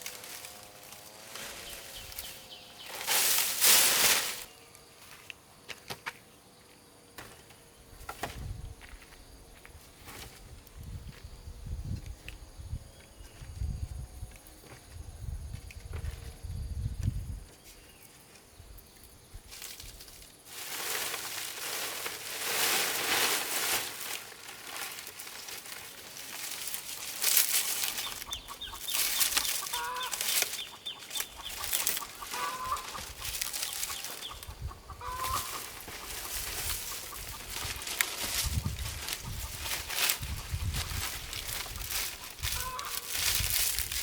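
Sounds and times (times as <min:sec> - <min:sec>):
noisy rustle: 0:00.0 - 0:04.6, 0:19.5 - 0:44.0
chickens clucking: 0:27.5 - 0:43.2.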